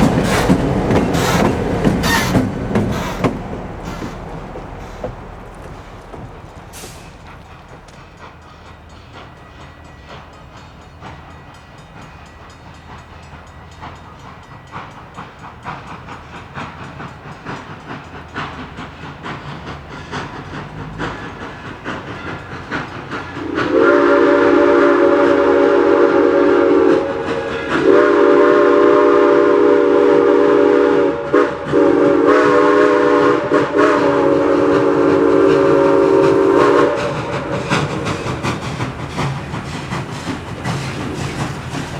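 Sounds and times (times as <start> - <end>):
steam locomotive running: 0.0 - 41.9
chime steam whistle blasts: 23.3 - 40.0.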